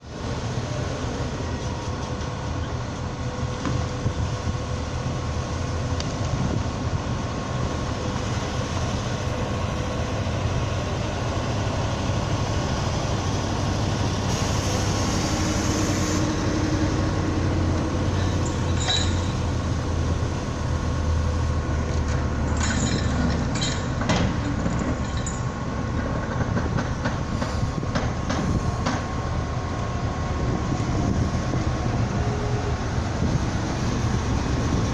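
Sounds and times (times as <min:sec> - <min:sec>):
low engine drone: 0:00.0 - 0:34.9
sharp knocks and clanks: 0:22.5 - 0:29.1.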